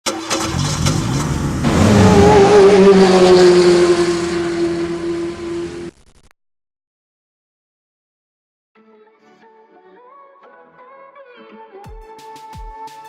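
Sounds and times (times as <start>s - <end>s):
car engine revving high: 0.1s - 5.9s.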